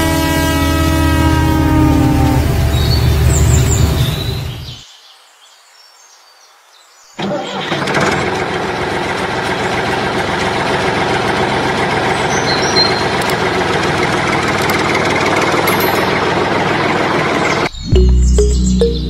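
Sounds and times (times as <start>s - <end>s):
engine running: 7.2s - 19.0s.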